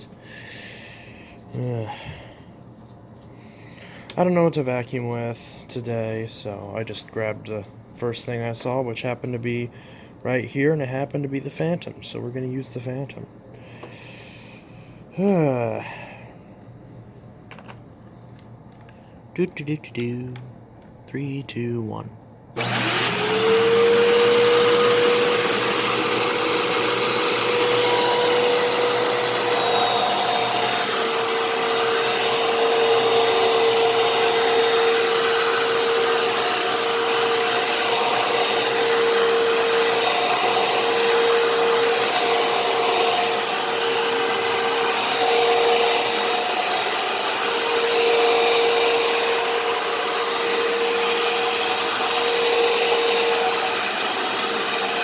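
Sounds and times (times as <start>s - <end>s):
vacuum cleaner running: 22.6s - 55.0s.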